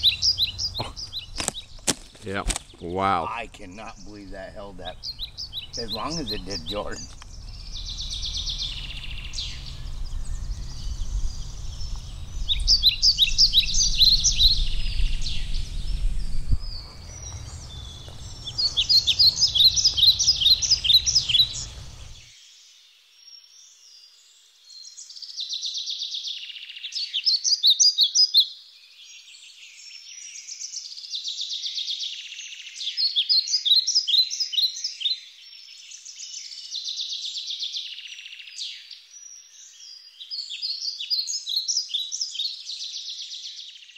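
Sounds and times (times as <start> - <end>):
songbird singing: 0.0 - 43.9
low rumble: 7.0 - 22.2.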